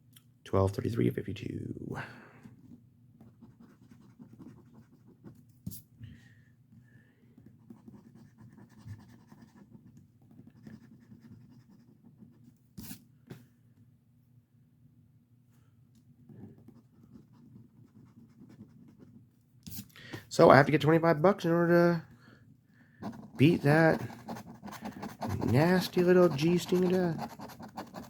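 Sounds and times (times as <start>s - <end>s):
scratching lottery ticket: 23.0s - 28.0s.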